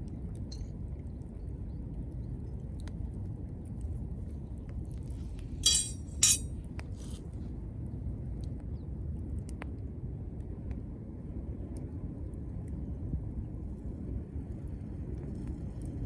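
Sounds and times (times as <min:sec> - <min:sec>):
metal cooker clinking: 0:05.6 - 0:06.4.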